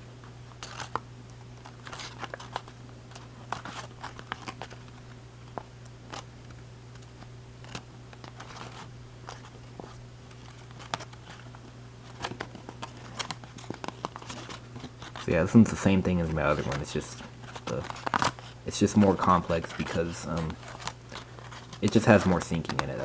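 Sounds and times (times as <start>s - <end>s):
steady low hum: 0.0s - 23.0s
paper crinkling: 0.6s - 1.0s, 1.6s - 5.0s, 7.0s - 23.0s.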